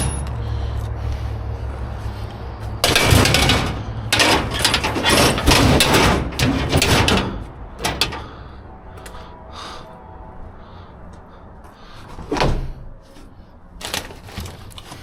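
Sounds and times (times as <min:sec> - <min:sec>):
scrap metal clanking and scraping: 0:02.1 - 0:09.2.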